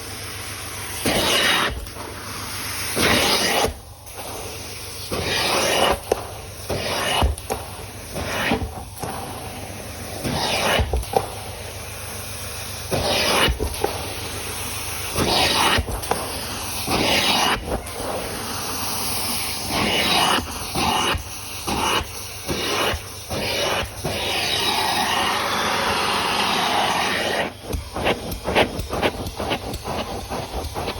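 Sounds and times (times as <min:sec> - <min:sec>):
carpet extractor spraying and sucking: 0:00.0 - 0:30.9
machine running steadily: 0:20.4 - 0:30.9.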